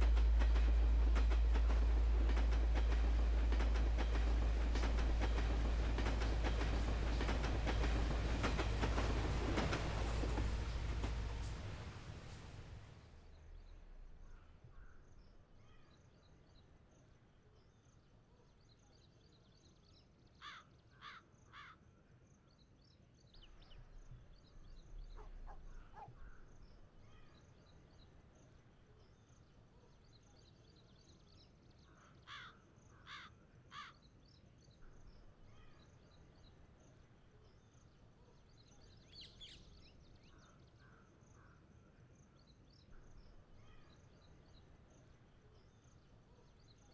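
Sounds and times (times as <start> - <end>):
crow cawing: 20.4 - 21.8, 32.3 - 34.0.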